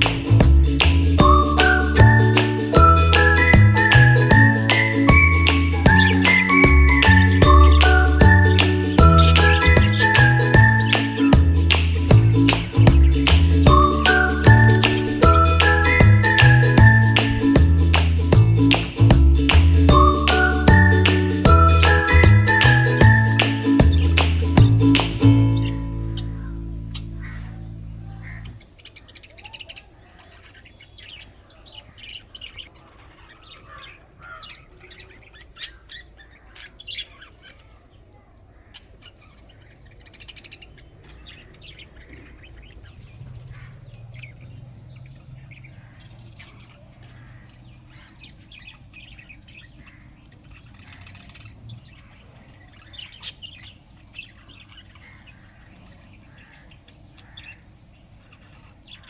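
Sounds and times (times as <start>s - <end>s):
budgerigars chirping and chattering: 1.2s - 17.8s, 20.0s - 37.8s, 38.5s - 44.4s, 45.0s - 59.0s
low steady hum: 24.2s - 28.6s.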